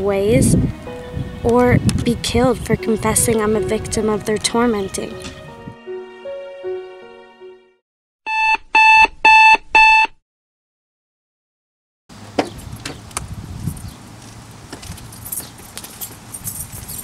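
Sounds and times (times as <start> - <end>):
alarm clock beeping: 8.3 - 10.2
outdoor ambience: 12.1 - 17.0.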